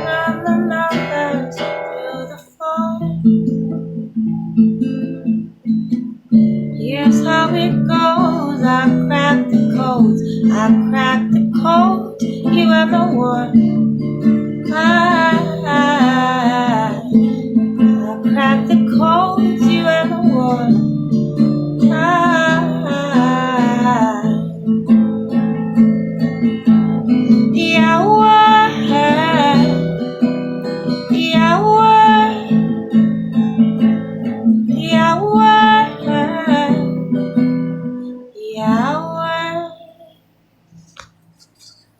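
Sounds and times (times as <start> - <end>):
person singing wordless melody: 0.0 - 3.2, 6.8 - 13.6, 14.7 - 21.0, 21.8 - 24.6, 27.5 - 30.0, 30.9 - 33.6, 34.7 - 37.0, 38.3 - 40.2
acoustic guitar strumming: 0.0 - 41.9.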